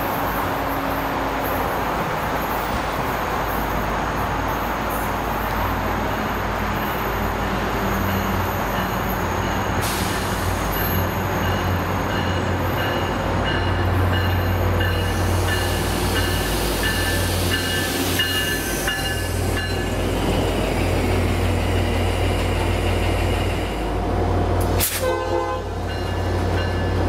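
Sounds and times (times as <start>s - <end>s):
diesel locomotive engine hum: 0.0s - 27.0s
short hiss: 24.7s - 25.1s.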